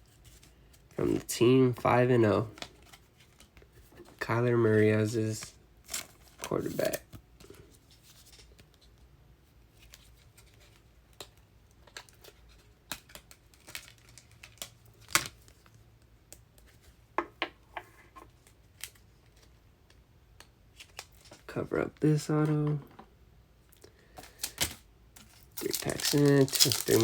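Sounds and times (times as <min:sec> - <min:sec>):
trading cards clicking and scraping: 0:24.2 - 0:27.0.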